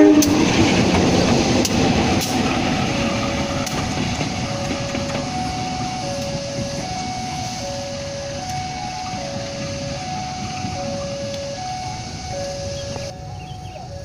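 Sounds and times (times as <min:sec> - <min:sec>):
locomotive rumbling past: 0:00.0 - 0:14.0
two-note alternating tone: 0:04.5 - 0:14.0.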